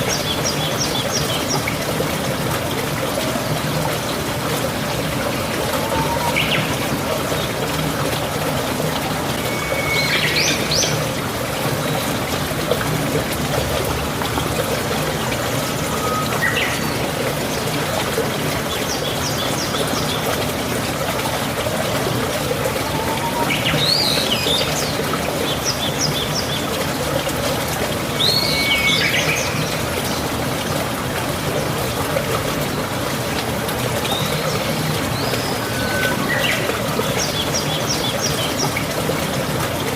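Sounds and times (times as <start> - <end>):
water trickling and splashing: 0.0 - 39.9
birds chirping and trilling: 34.1 - 38.8.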